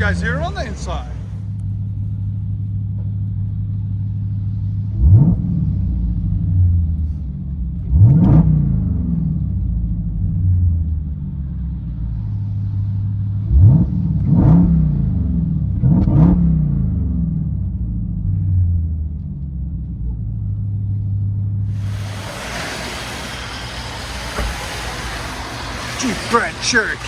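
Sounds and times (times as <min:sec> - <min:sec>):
car engine idling and revving: 0:00.0 - 0:27.0
steady rush of noise: 0:21.7 - 0:27.0.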